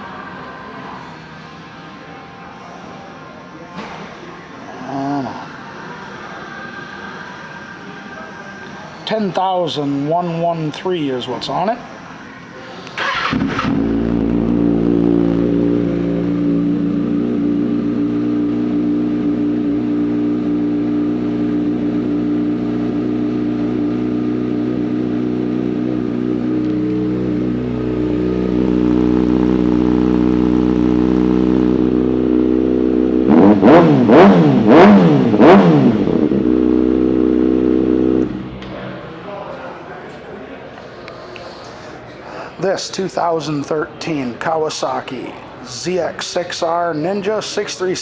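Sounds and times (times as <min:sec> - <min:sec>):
engine revving: 0:12.8 - 0:39.0
motorcycle engine idling: 0:12.9 - 0:39.0.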